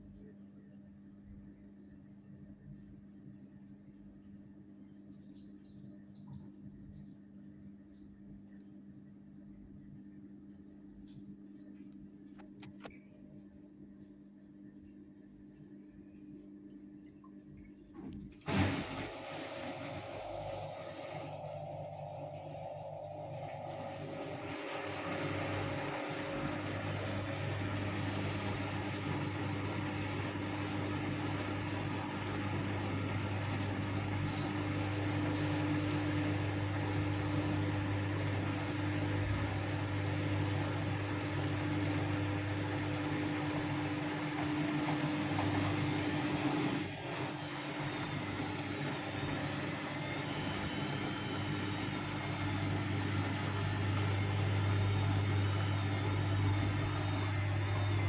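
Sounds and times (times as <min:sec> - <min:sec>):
washing machine motor humming: 0:18.0 - 0:58.0.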